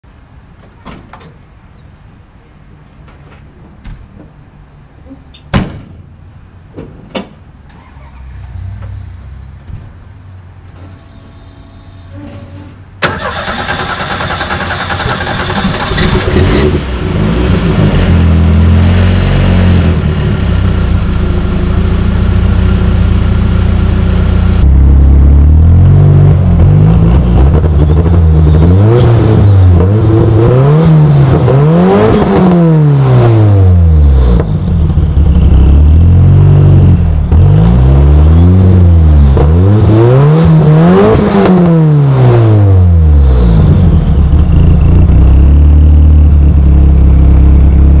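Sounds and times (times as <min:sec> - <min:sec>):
car engine idling and revving: 0:13.0 - 0:48.0.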